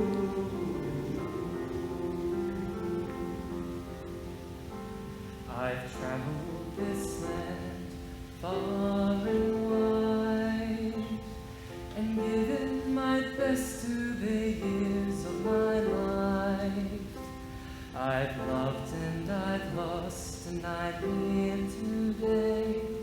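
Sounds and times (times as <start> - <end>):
voices singing long notes: 0.0 - 17.3.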